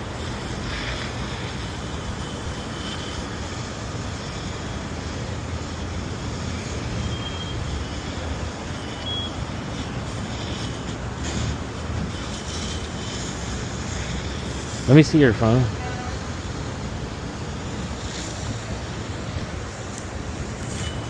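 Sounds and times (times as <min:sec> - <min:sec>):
low rumble of traffic: 0:00.0 - 0:21.0
short high-pitched beeps: 0:07.0 - 0:07.7, 0:08.8 - 0:09.4.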